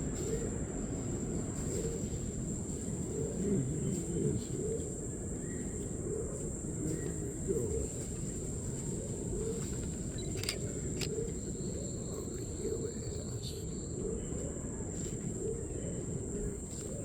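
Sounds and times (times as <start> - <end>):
sharp clicks: 10.2 - 11.2.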